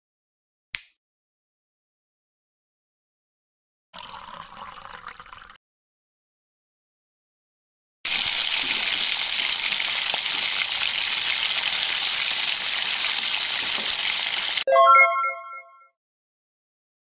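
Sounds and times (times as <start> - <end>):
food sizzling in hot oil: 8.1 - 14.6
ringing chime-like tone: 14.7 - 16.0.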